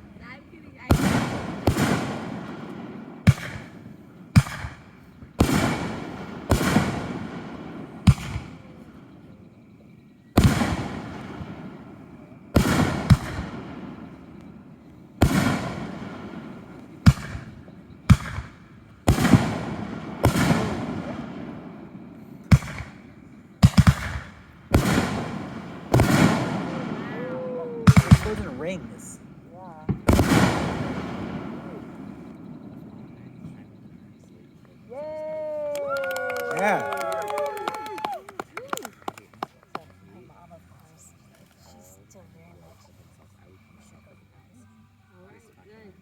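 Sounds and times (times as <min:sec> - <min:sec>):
firework shells bursting: 0:00.0 - 0:09.6, 0:10.4 - 0:33.2.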